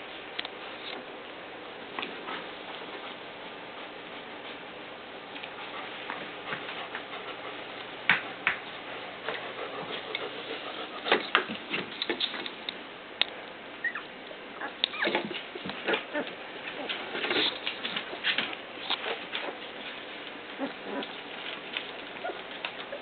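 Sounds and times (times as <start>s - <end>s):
puppies whimpering and squeaking: 13.8s - 18.3s, 20.6s - 21.2s, 22.1s - 23.0s.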